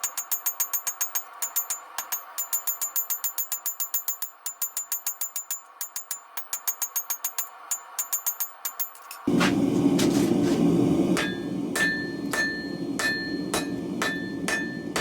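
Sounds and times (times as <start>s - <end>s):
loud steady rushing noise: 9.3s - 15.0s
power hammer striking steel: 11.1s - 15.0s.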